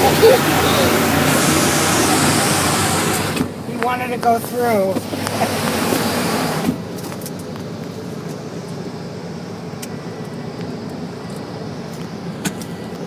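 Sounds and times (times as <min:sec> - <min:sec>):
loud rushing noise: 0:00.0 - 0:03.6
car engine hum from inside: 0:00.0 - 0:13.0.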